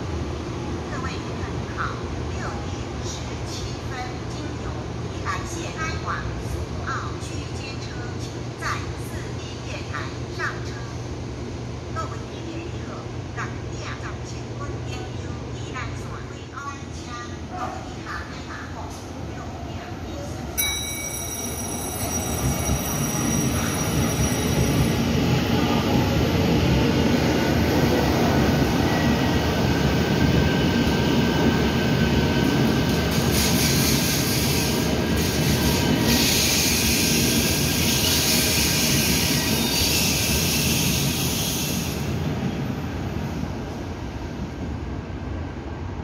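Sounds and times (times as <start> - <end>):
train carriages rumbling: 17.0 - 42.9.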